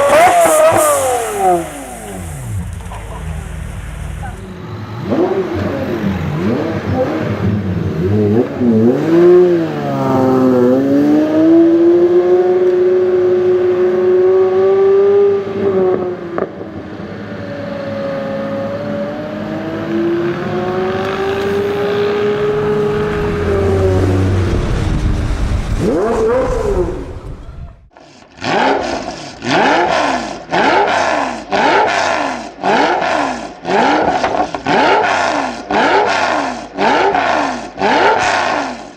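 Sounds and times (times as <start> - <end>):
car engine running: 0.0 - 4.6, 21.3 - 27.8.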